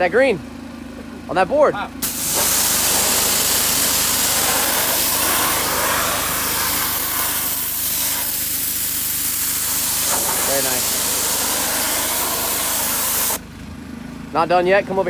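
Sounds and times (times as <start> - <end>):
high-pressure water jet hissing: 2.0 - 13.4
pressure washer engine running: 2.0 - 13.5.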